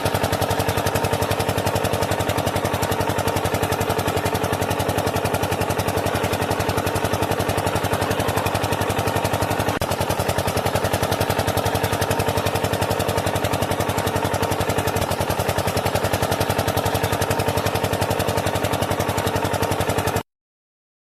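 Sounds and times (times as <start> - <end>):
engine chugging at idle: 0.0 - 20.2.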